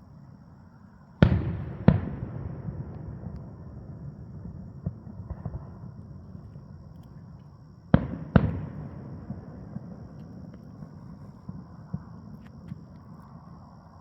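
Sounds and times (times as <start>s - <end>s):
sharp fireworks booms: 1.2s - 7.3s, 7.9s - 12.7s
fireworks bursting: 7.9s - 10.5s.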